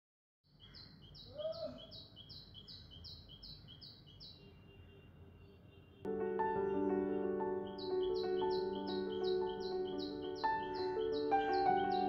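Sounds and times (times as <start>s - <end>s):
bird calling high notes: 6.6s - 12.0s.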